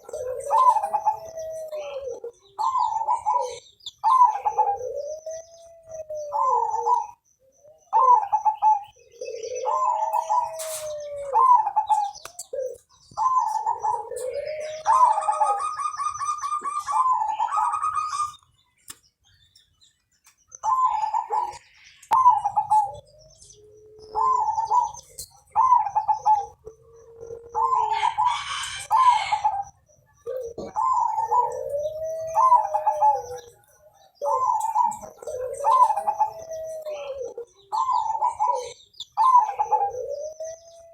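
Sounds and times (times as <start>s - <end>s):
dove cooing: 0.0s - 18.6s, 20.5s - 40.9s.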